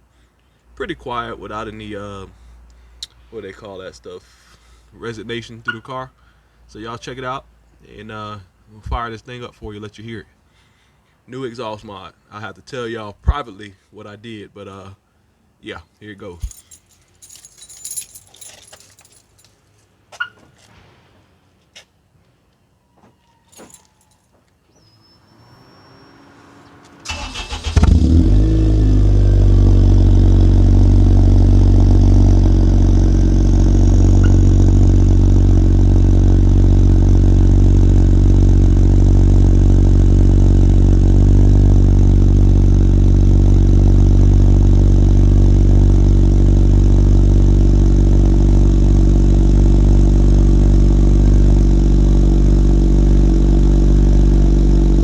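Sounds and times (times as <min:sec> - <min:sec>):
starter cranking: 0:27.1 - 0:28.1
car engine idling loudly: 0:27.1 - 0:55.0.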